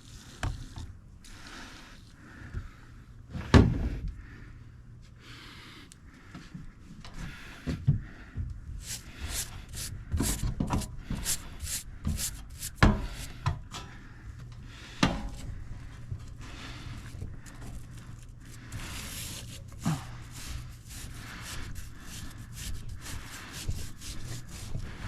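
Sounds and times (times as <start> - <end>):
low steady hum: 0.0 - 25.0
brush scrubbing coil: 8.8 - 13.4, 17.5 - 25.0.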